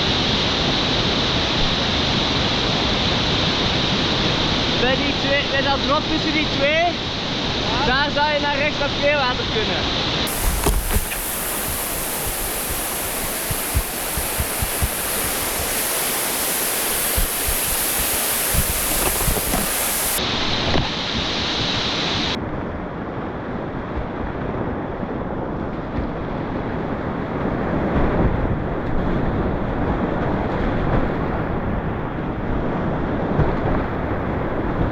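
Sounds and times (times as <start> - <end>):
whitewater rushing: 10.3 - 20.2.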